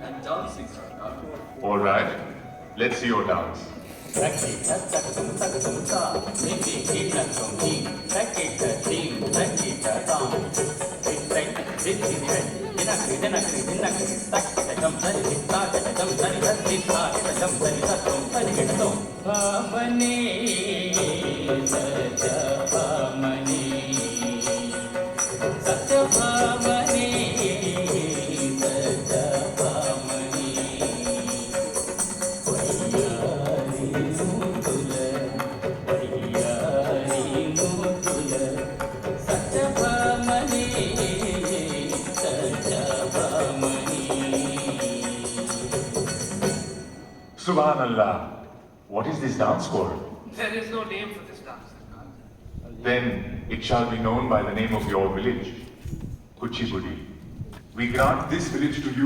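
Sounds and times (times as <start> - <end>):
wavering melody: 0.0 - 47.5
rhythmic percussion: 3.8 - 47.8
jingling bells: 4.1 - 47.9.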